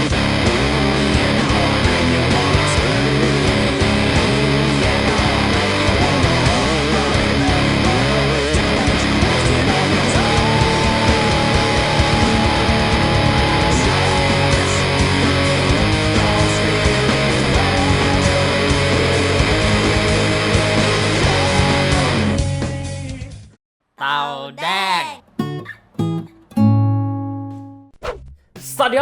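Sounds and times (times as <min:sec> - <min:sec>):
distorted electric guitar riffs: 0:00.0 - 0:22.4.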